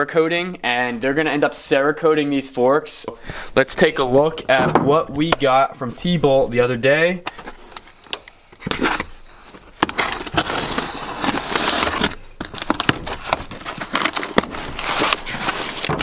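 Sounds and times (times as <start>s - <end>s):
packaging rustling and crinkling: 7.3s - 16.0s.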